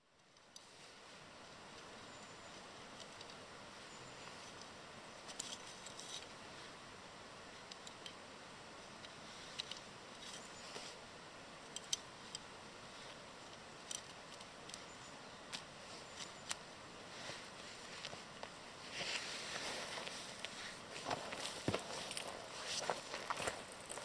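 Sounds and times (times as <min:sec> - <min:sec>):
faint steady hiss: 0:00.0 - 0:24.0
small hard objects clicking: 0:22.9 - 0:24.0.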